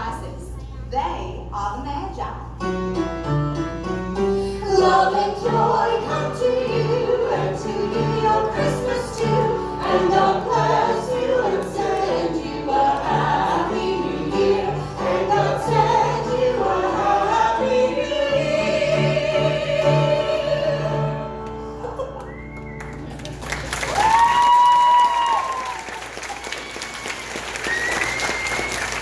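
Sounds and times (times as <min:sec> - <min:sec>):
musical accompaniment: 0:02.6 - 0:23.8
voices singing a carol: 0:04.6 - 0:21.5.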